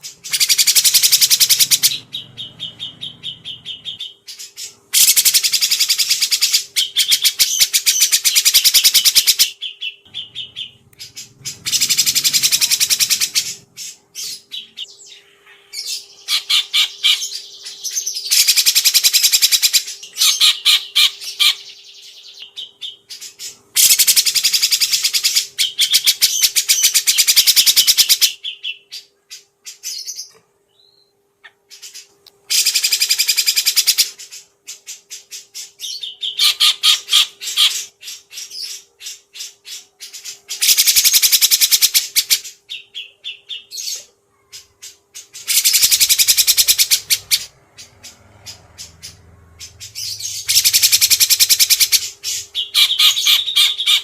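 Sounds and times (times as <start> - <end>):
songbird trilling: 0.2 - 29.1, 45.4 - 54.0.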